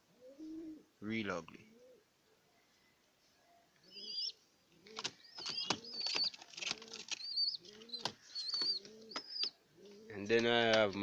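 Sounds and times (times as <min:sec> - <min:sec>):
pigeons cooing: 0:00.0 - 0:00.9, 0:01.7 - 0:02.1, 0:03.8 - 0:10.3.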